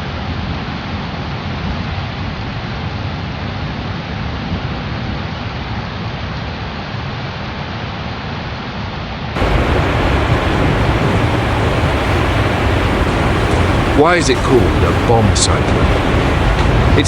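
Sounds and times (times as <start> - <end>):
hurricane wind and rain: 9.4 - 17.0.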